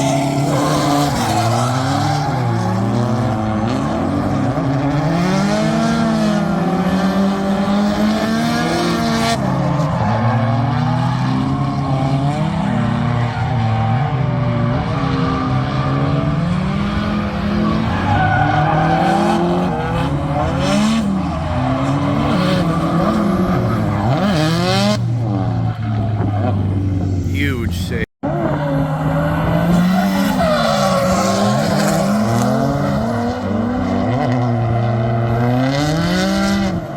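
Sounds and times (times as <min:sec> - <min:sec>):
car engine revving hard: 0:14.6 - 0:27.0.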